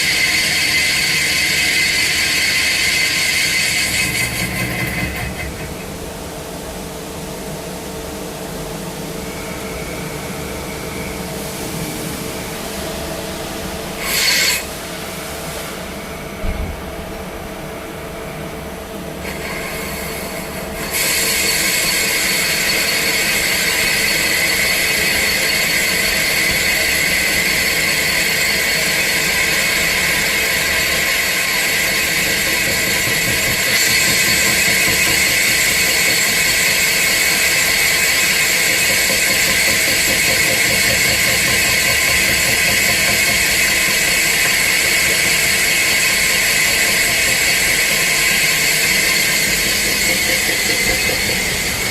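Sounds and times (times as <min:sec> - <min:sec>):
lathe machine hum: 0:00.0 - 0:07.8, 0:08.4 - 0:51.9
hiss with high ringing tones: 0:09.0 - 0:16.5, 0:19.2 - 0:51.9.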